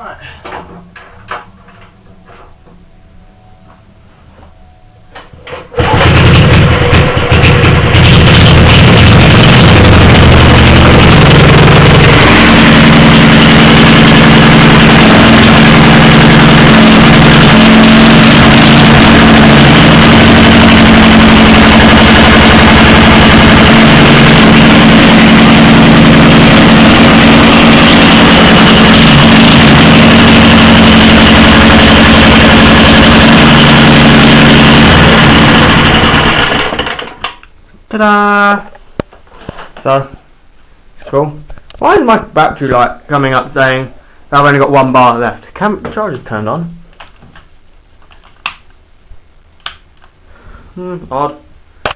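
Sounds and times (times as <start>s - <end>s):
two-stroke engine running: 5.8s - 37.2s.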